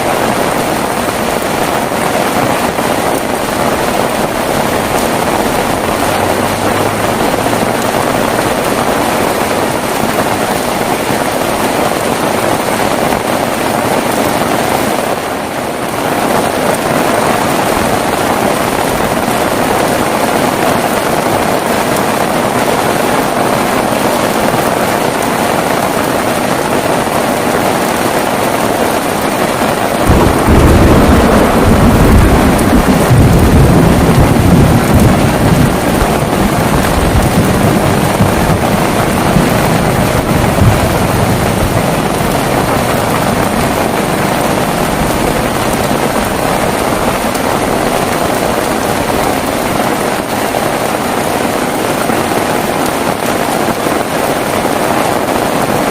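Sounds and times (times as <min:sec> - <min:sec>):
heavy rain falling: 0:00.0 - 0:55.9
low rumble of thunder: 0:30.0 - 0:49.7.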